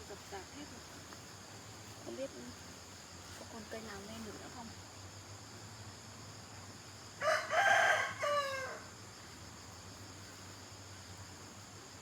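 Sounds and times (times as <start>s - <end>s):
insects chirring: 0.0s - 12.0s
rooster crowing: 7.2s - 8.9s.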